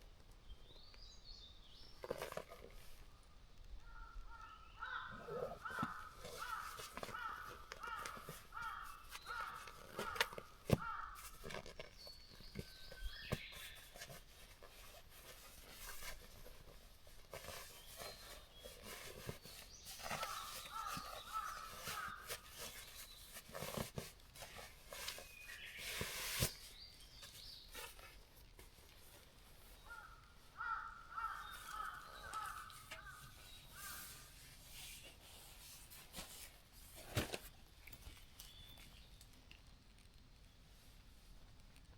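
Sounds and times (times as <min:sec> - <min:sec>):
crows cawing: 0:03.9 - 0:11.5, 0:20.2 - 0:22.8, 0:29.8 - 0:34.0.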